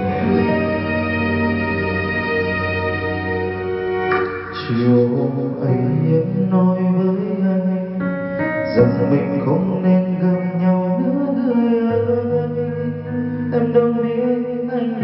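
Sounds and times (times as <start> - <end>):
karaoke backing music: 0.0 - 15.0
man singing into microphone: 4.3 - 15.0.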